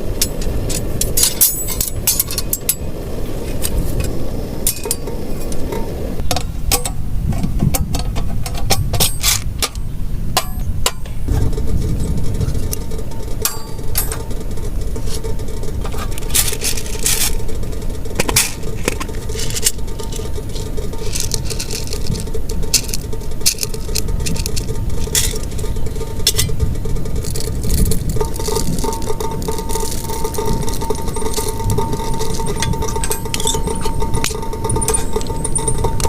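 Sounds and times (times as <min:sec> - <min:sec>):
sharp clinks and taps: 0:28.2 - 0:36.0.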